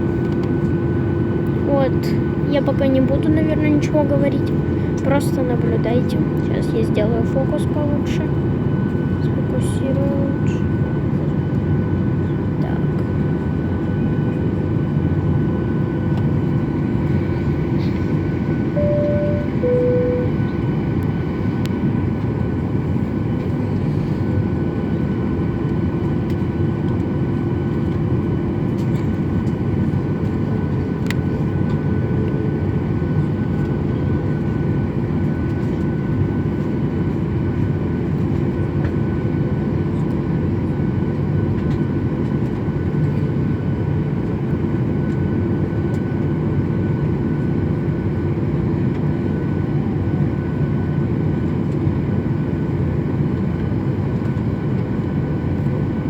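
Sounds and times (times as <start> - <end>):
airliner engine hum: 0.0 - 56.0
faint engine whine: 0.0 - 56.0
two-note cabin chime: 18.7 - 20.5.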